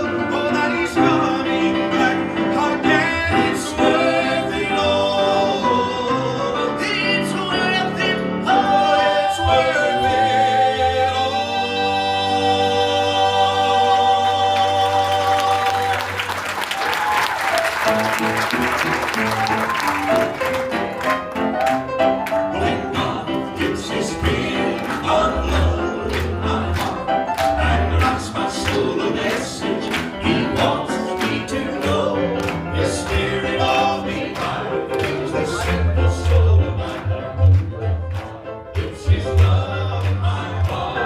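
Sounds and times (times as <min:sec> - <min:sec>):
gospel band playing: 0:00.0 - 0:41.0
audience applause: 0:14.6 - 0:41.0.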